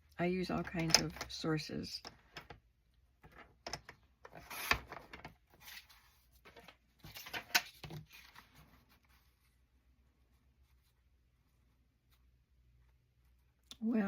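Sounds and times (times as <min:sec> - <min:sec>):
paper rustling: 0:04.4 - 0:09.6.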